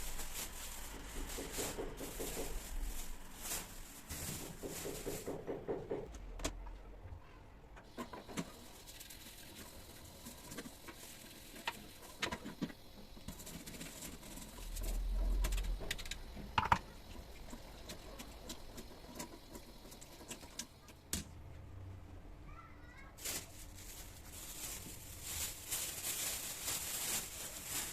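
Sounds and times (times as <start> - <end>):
objects clicking and knocking at sink: 15.4 - 21.3.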